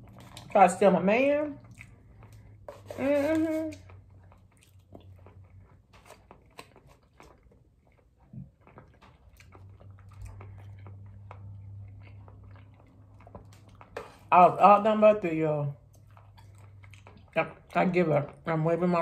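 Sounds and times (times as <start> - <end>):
low steady hum: 0.0 - 19.0
person chewing: 1.6 - 14.3, 15.8 - 18.4.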